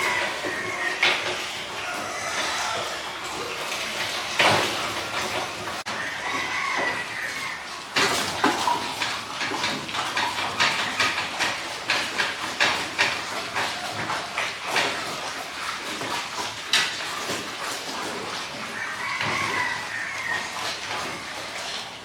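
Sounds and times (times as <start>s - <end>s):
pigs calling: 0.0s - 22.0s
knocks and clatters: 8.0s - 15.1s.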